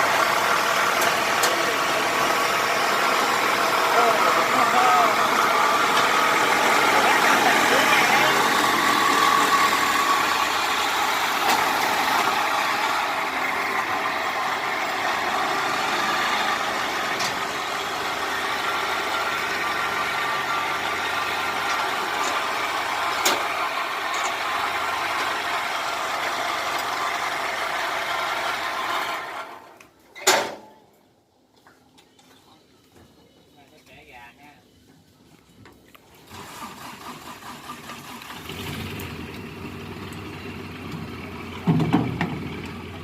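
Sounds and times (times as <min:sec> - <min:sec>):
diesel engine running: 0:00.0 - 0:29.8, 0:36.2 - 0:43.0.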